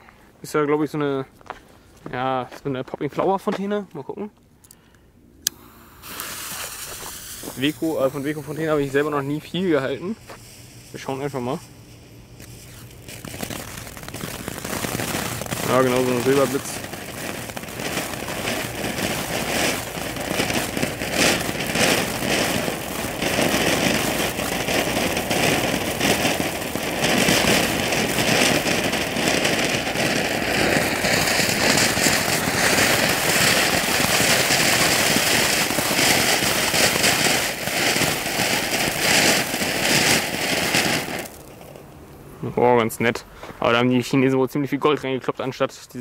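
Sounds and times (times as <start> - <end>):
firework fountain hissing and crackling: 5.5 - 41.9.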